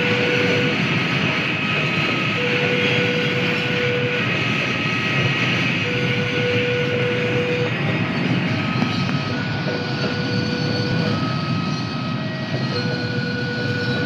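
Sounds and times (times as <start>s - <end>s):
freight train running past: 0.0s - 14.0s.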